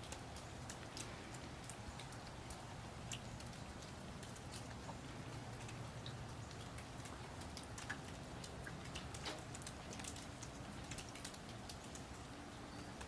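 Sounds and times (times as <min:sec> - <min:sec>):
light ticks and clicks: 0:00.0 - 0:13.0
low steady hum: 0:00.0 - 0:13.0
birds chirping: 0:12.3 - 0:13.0.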